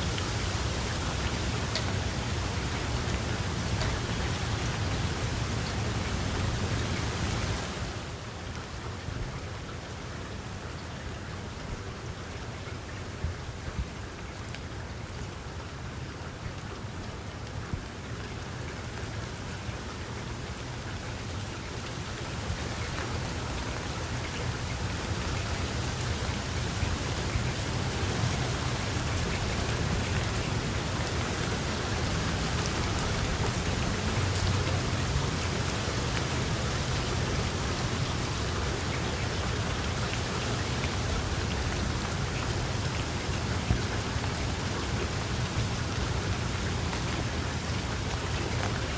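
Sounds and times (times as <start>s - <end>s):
rain pattering: 0.0s - 48.9s.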